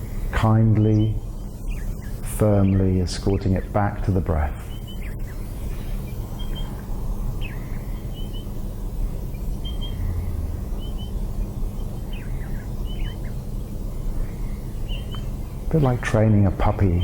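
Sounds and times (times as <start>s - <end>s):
small birds chirping: 0.0s - 17.0s
low outdoor rumble: 5.8s - 17.0s.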